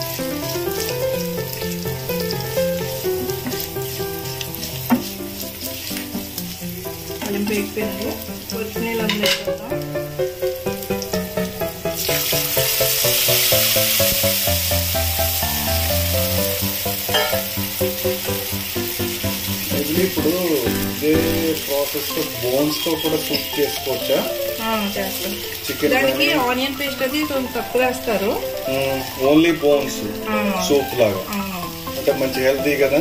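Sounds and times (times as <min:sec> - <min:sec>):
spatula stirring in pan: 0:00.0 - 0:09.7
broth poured into hot oil: 0:00.0 - 0:33.0
food sizzling in hot oil: 0:00.0 - 0:33.0.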